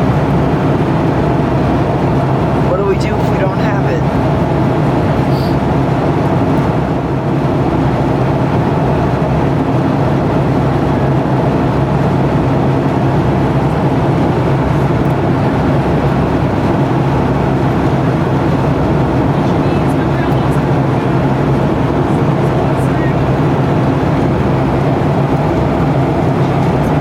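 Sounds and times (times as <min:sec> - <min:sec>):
airliner cabin engine roar: 0:00.0 - 0:27.0
low hum: 0:00.0 - 0:27.0.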